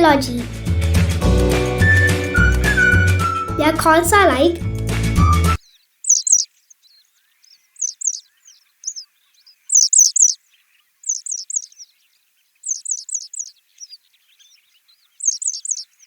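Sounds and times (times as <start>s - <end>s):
bird chirping: 5.5s - 16.0s.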